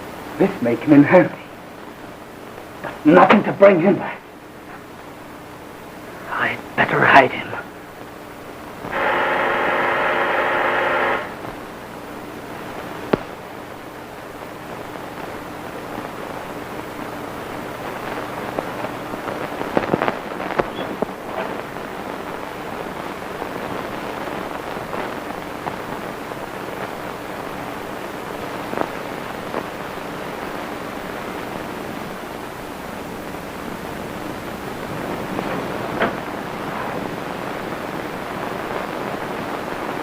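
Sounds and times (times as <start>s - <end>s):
film soundtrack hiss and hum: 0.0s - 40.0s
crackles and knocks: 1.7s - 3.6s, 4.3s - 5.7s, 8.0s - 40.0s
film pops: 12.7s - 13.4s, 17.9s - 21.8s.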